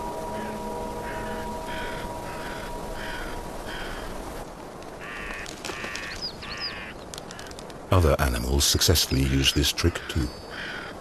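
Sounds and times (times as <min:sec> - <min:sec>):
crows cawing: 0:00.2 - 0:07.6, 0:09.9 - 0:11.0.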